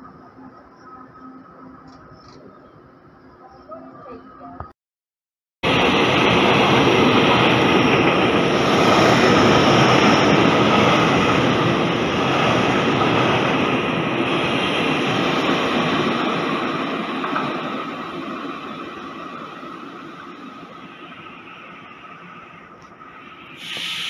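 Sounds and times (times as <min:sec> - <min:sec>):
train rushing past: 0:05.6 - 0:24.0.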